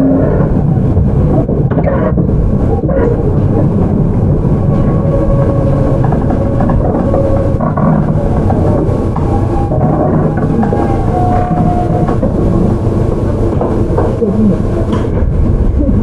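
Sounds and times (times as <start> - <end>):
train wheels rumbling on rails: 0.0 - 16.0
traction motors whirring: 3.2 - 15.4.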